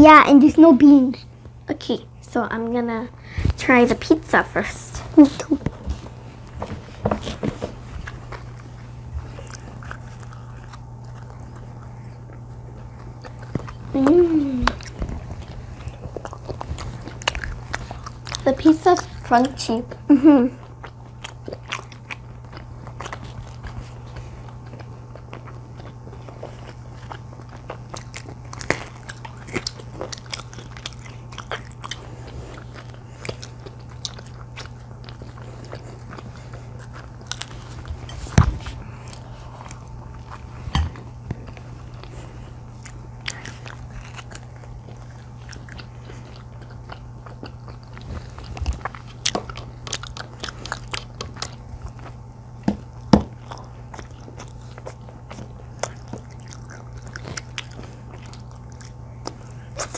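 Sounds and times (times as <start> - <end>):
steady low hum: 0.0 - 59.9
chewing: 5.2 - 59.9
crunchy pizza crust bites: 20.7 - 59.9.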